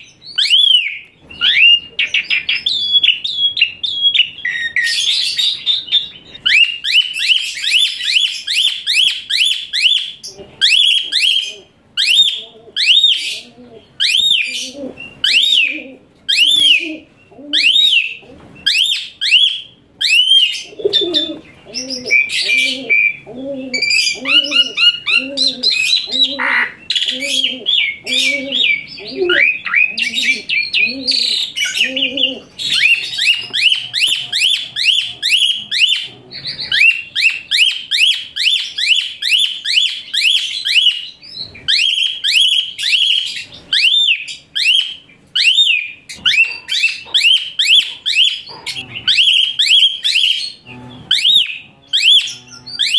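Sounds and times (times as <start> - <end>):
starling singing shrill whistles: 0.0 - 13.4, 17.6 - 21.3, 32.6 - 48.5, 49.1 - 50.6.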